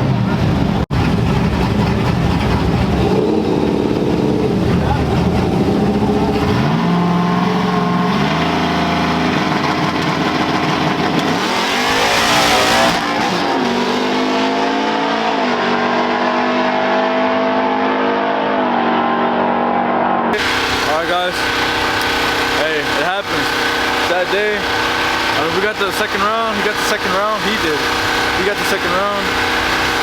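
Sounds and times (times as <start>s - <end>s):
truck engines running hard: 0.0s - 18.5s, 20.2s - 30.0s
truck passing close: 20.2s - 30.0s.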